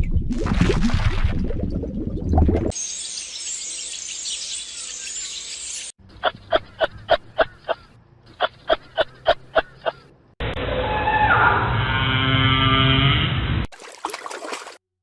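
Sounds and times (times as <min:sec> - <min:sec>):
high chirping chorus: 0:02.8 - 0:10.2
rapid repeated animal calls: 0:06.1 - 0:10.1.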